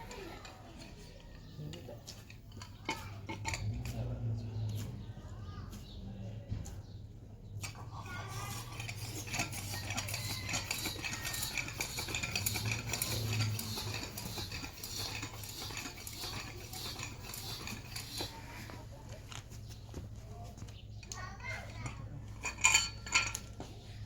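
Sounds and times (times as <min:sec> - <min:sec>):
small metal objects clinking: 0:07.6 - 0:18.8, 0:21.7 - 0:23.6.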